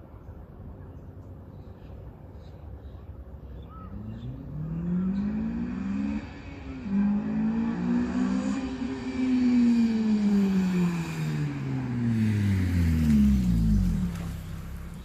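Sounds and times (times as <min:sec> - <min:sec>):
car engine accelerating hard: 0:03.9 - 0:15.0.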